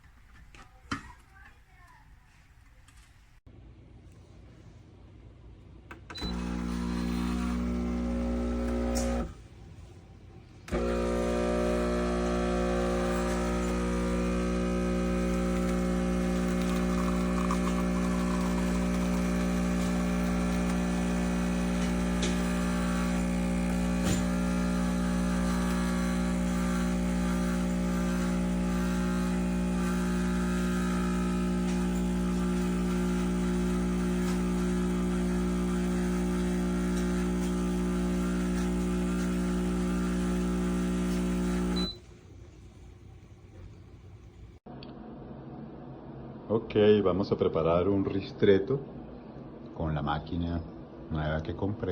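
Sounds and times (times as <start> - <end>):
espresso machine pump humming: 6.2 - 9.3, 10.7 - 42.0.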